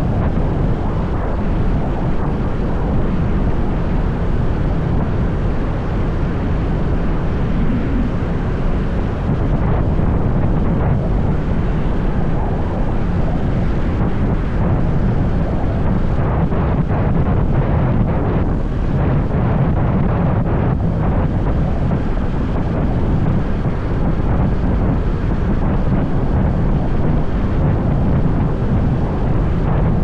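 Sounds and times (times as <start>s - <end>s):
road noise: 0.0s - 16.1s
wind rushing over microphone: 0.0s - 30.0s.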